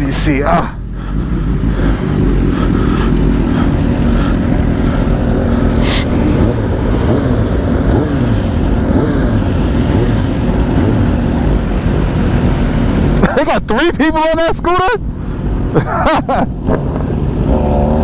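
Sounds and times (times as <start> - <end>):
wind and road noise: 0.0 - 18.0
motorcycle engine revving: 0.8 - 13.3, 16.5 - 18.0.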